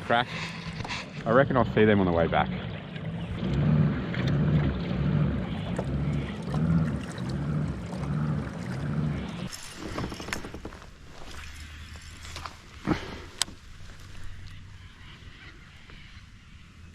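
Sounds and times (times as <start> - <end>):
kayak paddle strokes in water: 0.0 - 12.5.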